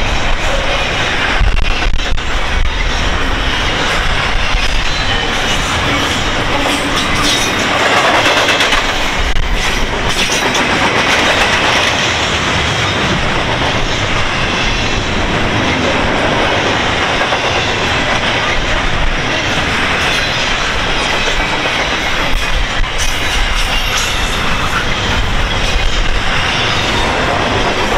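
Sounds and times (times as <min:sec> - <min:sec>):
freight train wheels on rails: 0:00.0 - 0:27.9
wheels clicking over rail joints: 0:03.9 - 0:14.0.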